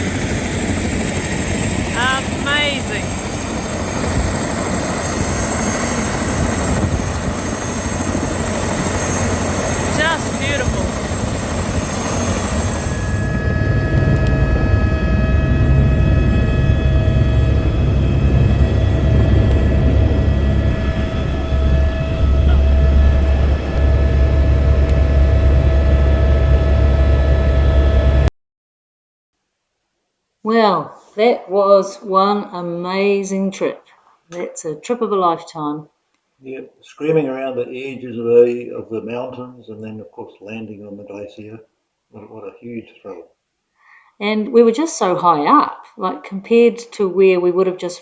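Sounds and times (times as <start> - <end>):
helicopter engine and rotor: 0.0 - 28.3.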